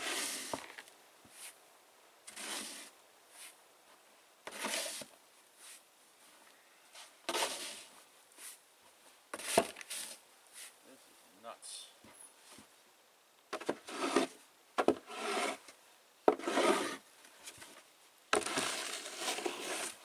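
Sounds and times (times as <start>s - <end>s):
snow shovel scraping through snow: 0.0s - 0.7s, 2.3s - 3.6s, 4.5s - 5.8s, 7.3s - 8.6s, 13.8s - 14.4s, 15.1s - 15.6s, 16.4s - 17.0s, 18.4s - 20.0s.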